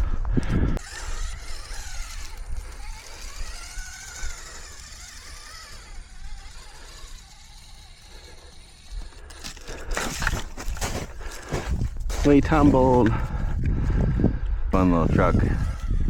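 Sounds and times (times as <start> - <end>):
small electric motor whining: 0.8 - 12.0, 14.8 - 16.0.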